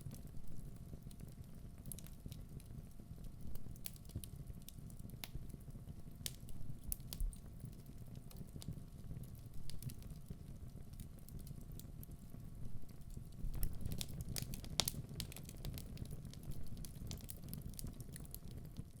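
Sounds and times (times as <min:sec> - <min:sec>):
fire flames rumbling: 0:00.0 - 0:18.8
logs crackling and popping: 0:03.5 - 0:12.1, 0:12.8 - 0:18.9.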